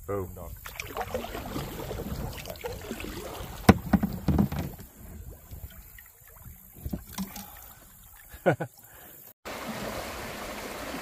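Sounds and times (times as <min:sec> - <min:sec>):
water sloshing: 0:00.5 - 0:08.8
paddle knocking on canoe: 0:00.7 - 0:05.7.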